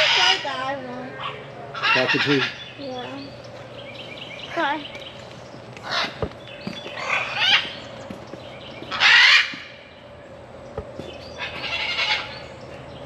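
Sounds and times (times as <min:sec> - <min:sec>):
cockatoo screeching: 0:00.0 - 0:00.6, 0:01.2 - 0:02.7, 0:07.0 - 0:07.8, 0:08.9 - 0:09.8, 0:11.4 - 0:12.5.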